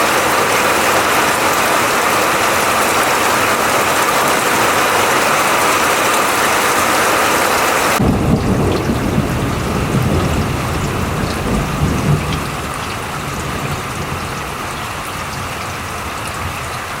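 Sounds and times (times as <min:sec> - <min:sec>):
heavy rain hissing: 0:00.0 - 0:17.0
deep rolling thunder: 0:08.0 - 0:15.9.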